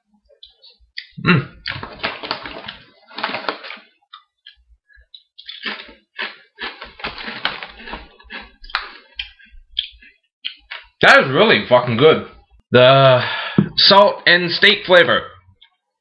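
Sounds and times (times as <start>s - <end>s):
tortilla chips being chewed: 0.4s - 10.9s.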